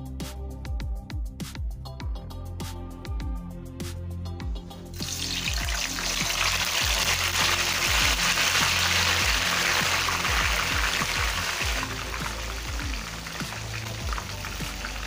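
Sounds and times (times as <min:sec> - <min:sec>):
background music with steady beat: 0:00.0 - 0:15.0
slices sizzling in hot oil: 0:05.0 - 0:15.0.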